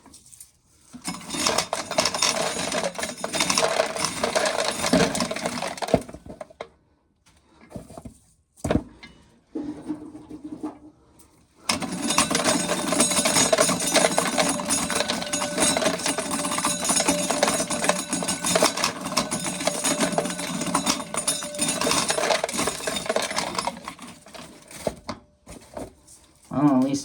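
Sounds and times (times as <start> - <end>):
corn sheller rattling: 0.9 - 6.6, 11.7 - 27.0.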